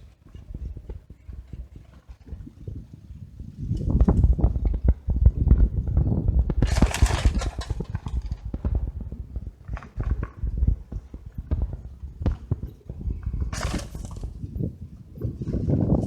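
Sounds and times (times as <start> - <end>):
wind rumble on microphone: 0.0 - 16.0
camera rattling and knocking: 3.7 - 15.8.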